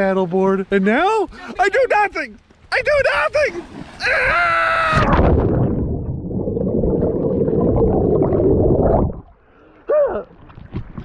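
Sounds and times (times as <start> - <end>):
rough gurgling noise: 3.5 - 11.0.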